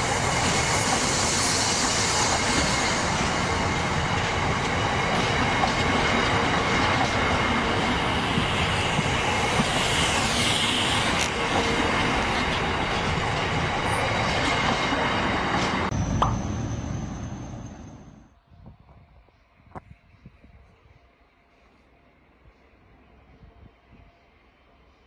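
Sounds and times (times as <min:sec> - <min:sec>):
train rumbling along track: 0:00.0 - 0:18.3.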